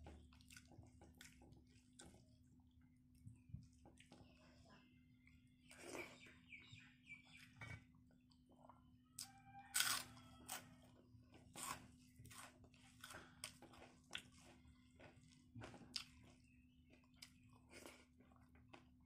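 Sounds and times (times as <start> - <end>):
person chewing crunchy food: 0.0 - 2.5, 7.8 - 19.0.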